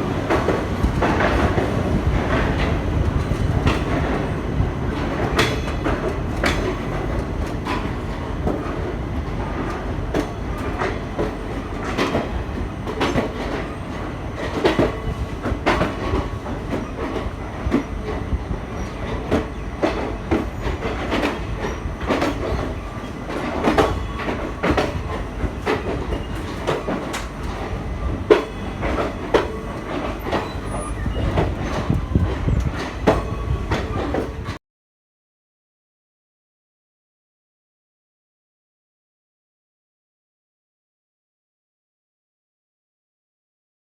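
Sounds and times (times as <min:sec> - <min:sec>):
train rumble: 0:00.0 - 0:34.6
wheels clacking over rail joints: 0:00.1 - 0:34.6.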